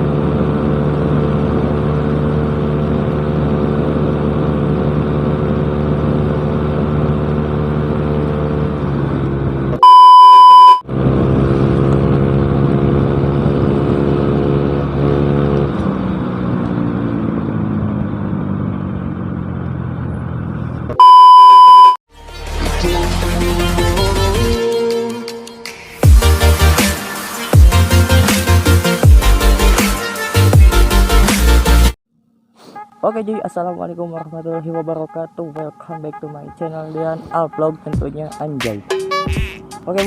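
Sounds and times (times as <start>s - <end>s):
scooter engine running: 0.0s - 9.8s
loud beep: 9.8s - 10.8s, 21.0s - 22.0s.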